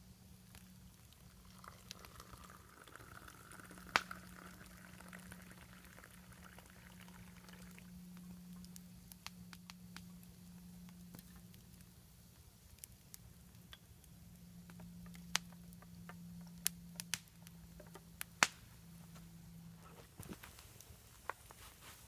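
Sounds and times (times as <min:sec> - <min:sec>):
food bubbling and hissing: 0:00.0 - 0:13.4
campfire crackling: 0:00.0 - 0:22.0.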